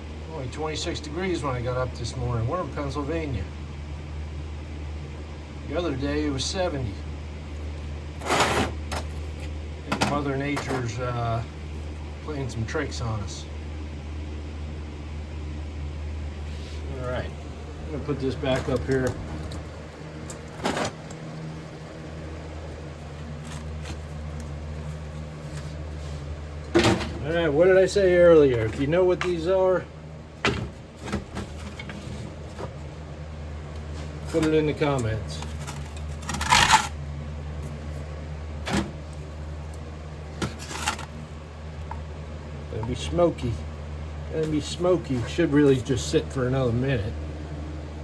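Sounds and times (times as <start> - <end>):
low mechanical hum: 0.0 - 48.0
tools and metal pieces scraping: 8.2 - 9.5, 35.4 - 37.0, 40.4 - 41.2.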